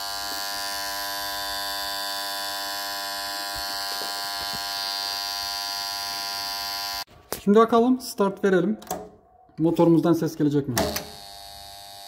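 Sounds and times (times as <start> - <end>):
electrical contactor mains buzz: 0.0 - 7.1, 10.8 - 12.0.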